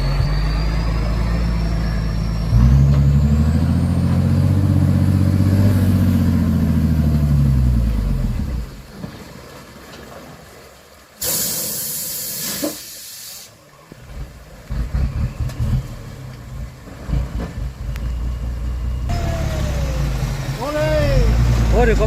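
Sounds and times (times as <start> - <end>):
truck diesel engine running: 0.0 - 8.8, 14.5 - 22.0
loud hiss: 11.2 - 13.6.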